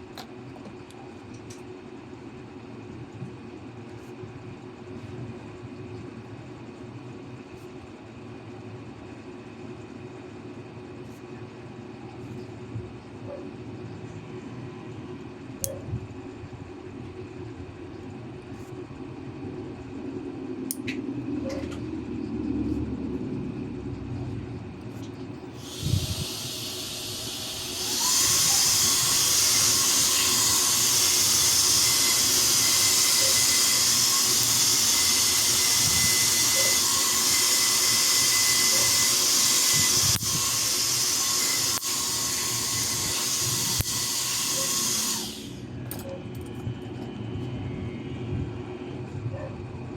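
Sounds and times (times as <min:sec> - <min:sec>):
motorized nail file grinding: 0:25.6 - 0:46.6.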